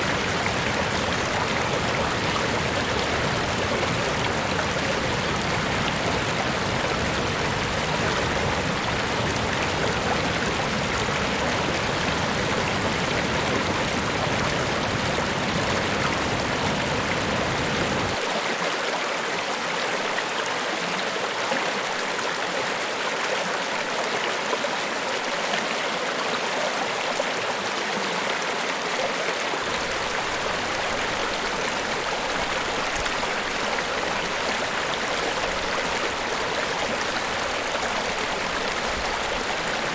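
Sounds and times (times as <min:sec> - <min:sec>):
waterfall rushing: 0:00.0 - 0:18.2, 0:29.6 - 0:39.9.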